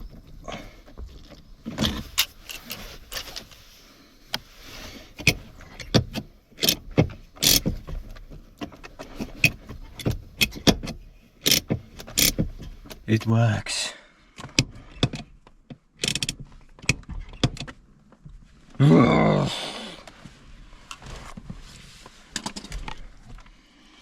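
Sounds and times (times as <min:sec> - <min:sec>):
handbrake mechanism clicks and rattles: 0:00.0 - 0:03.6, 0:04.3 - 0:13.3, 0:14.4 - 0:18.2, 0:22.3 - 0:23.1.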